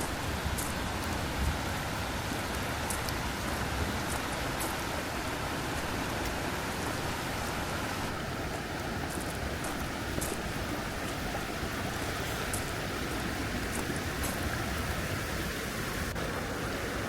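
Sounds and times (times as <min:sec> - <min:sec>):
faint high ticks: 0:00.0 - 0:01.1, 0:02.5 - 0:03.2, 0:08.8 - 0:10.5, 0:11.9 - 0:12.8
mountain stream rushing: 0:00.0 - 0:17.0.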